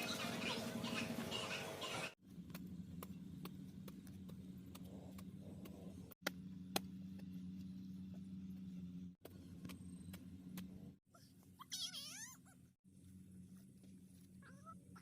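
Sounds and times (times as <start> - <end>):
engine humming: 0.0 - 11.6.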